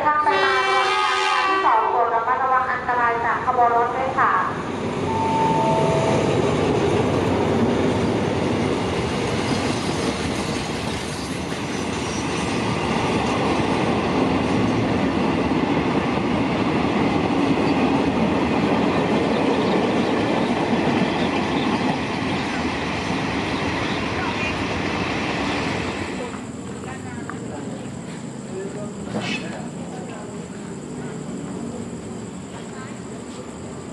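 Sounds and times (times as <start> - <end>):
freight train wheels rumbling on rails: 2.8 - 33.9.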